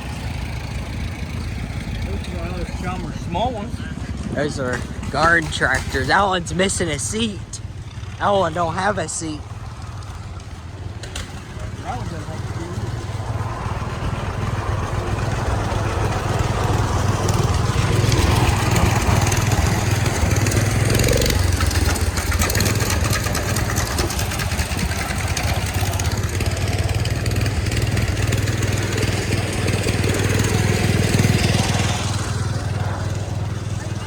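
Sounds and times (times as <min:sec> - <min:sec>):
small engine humming: 0:00.0 - 0:34.0.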